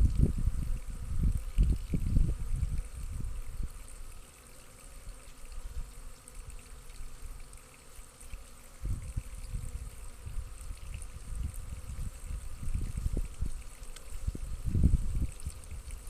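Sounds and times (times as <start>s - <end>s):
low microphone rumbles: 0.0s - 3.4s.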